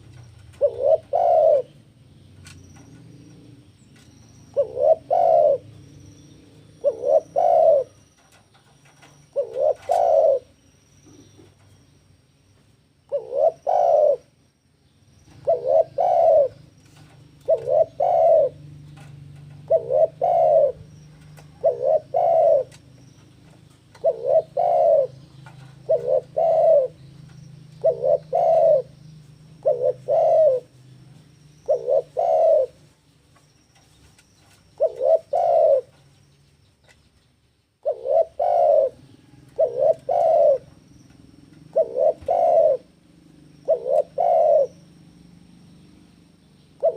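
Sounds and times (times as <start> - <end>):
dove cooing: 0.0 - 3.4, 4.5 - 5.8, 6.4 - 11.6, 13.1 - 14.4, 15.3 - 32.9, 34.8 - 36.0, 37.8 - 45.2.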